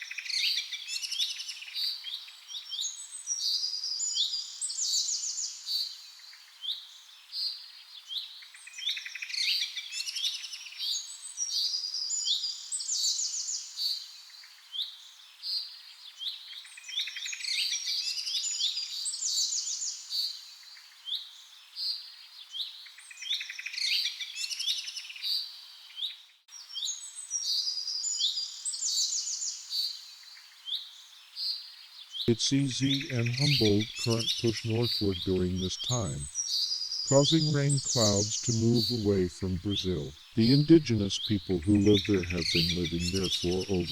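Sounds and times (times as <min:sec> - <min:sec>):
birds chirping and calling: 0:37.1 - 0:43.9.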